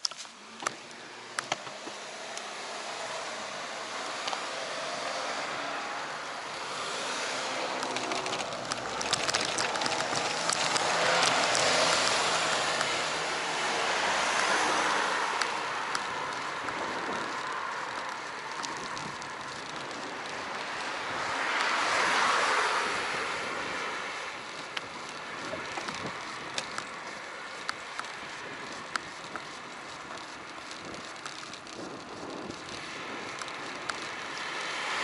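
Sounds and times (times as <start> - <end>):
clicks: 0.0 - 2.5, 24.4 - 34.6
bicycle tyre and road noise: 0.0 - 35.0
wind on camera microphone: 7.4 - 35.0.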